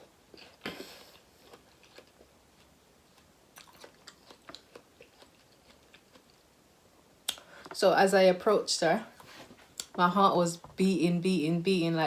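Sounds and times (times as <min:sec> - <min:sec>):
person chewing and crunching: 0:00.0 - 0:06.6.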